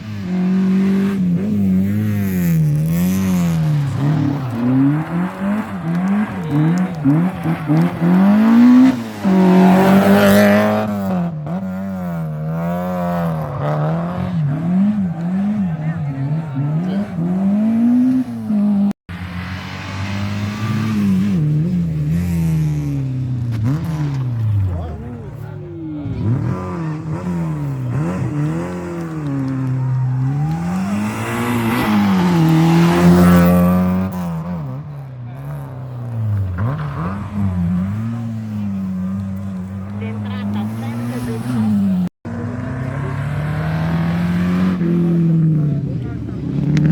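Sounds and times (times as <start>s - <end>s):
rally car engine revving: 0.0s - 46.9s.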